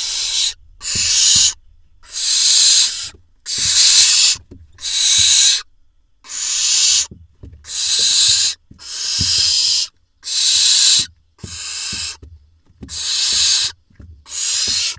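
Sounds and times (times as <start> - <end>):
owl nestlings hissing: 0.0 - 12.2, 12.8 - 14.9.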